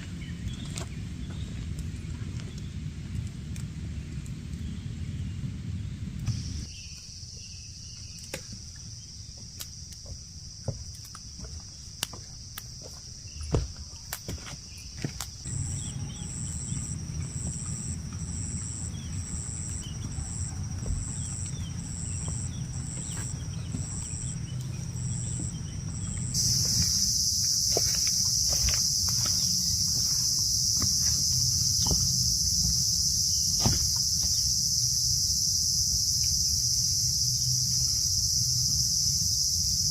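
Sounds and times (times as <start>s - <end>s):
high-pitched insect chorus: 6.3s - 39.9s
insect chirping in pulses: 15.2s - 39.9s
low steady rumble: 15.5s - 39.0s.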